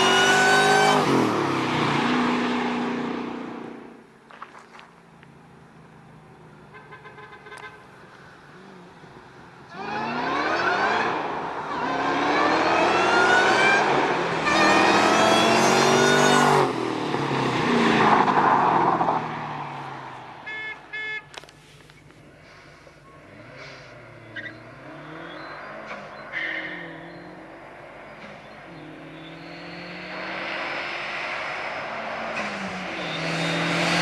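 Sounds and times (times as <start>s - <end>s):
short beeps: 20.5s - 21.3s
car accelerating past: 23.2s - 34.0s.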